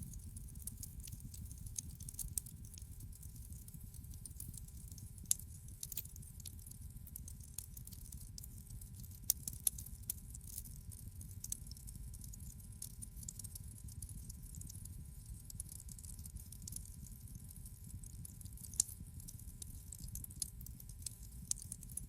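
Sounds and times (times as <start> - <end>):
fire crackling in a fireplace: 0.0 - 22.0.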